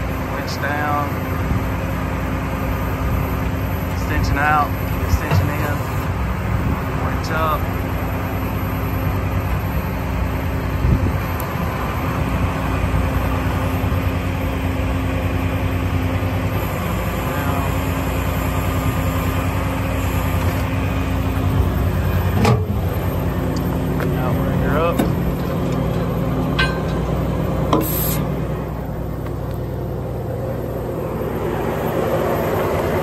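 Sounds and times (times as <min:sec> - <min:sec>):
diesel engine running: 0:00.0 - 0:33.0
sharp clunk: 0:22.4 - 0:22.8.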